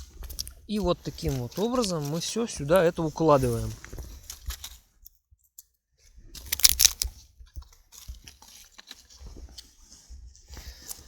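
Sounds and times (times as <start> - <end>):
birch bark crackling and rustling: 0.0 - 4.8, 6.4 - 9.9.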